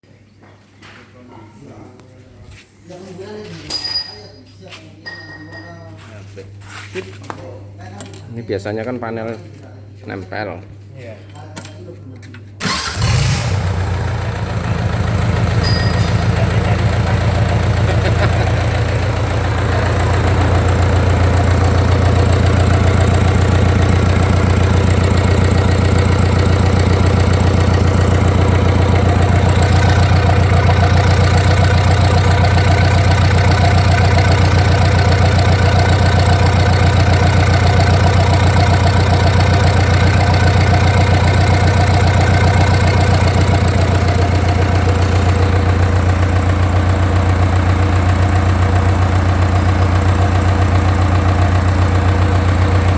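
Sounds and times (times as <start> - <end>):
diesel engine running: 12.6 - 52.9.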